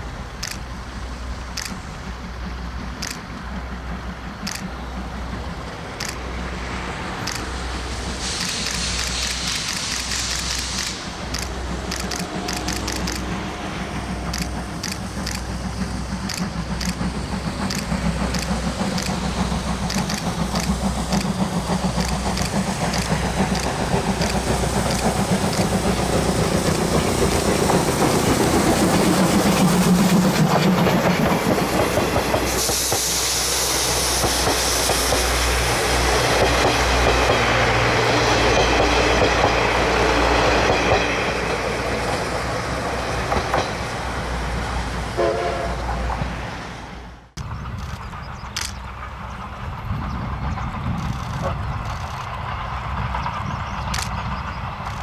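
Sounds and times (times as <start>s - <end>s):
steam train running past: 0.0s - 55.0s
train wheel clicks: 0.3s - 44.3s, 47.4s - 55.0s
loud steam hiss: 4.7s - 47.0s.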